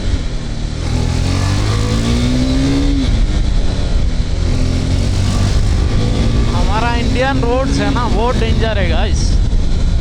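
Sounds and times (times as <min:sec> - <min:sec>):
motorcycle engine revving: 0:00.0 - 0:10.0
wind and road noise: 0:00.0 - 0:10.0.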